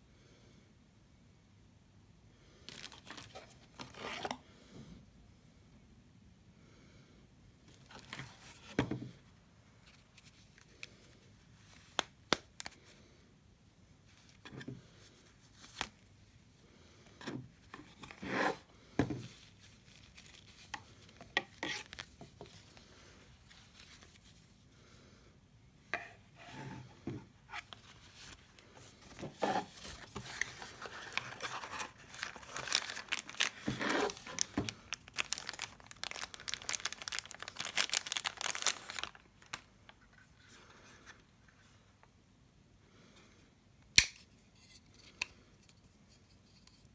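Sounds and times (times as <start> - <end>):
plastic crinkling and tearing: 2.7 - 4.3, 29.1 - 39.7.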